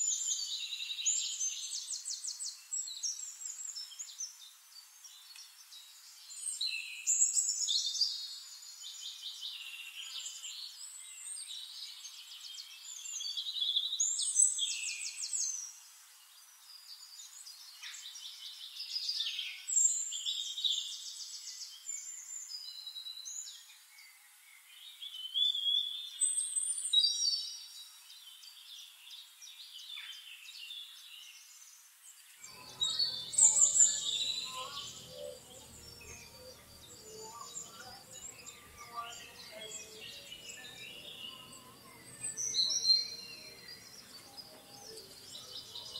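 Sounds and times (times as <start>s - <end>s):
small birds chirping and singing: 0.0s - 45.9s
low hum: 32.5s - 45.9s.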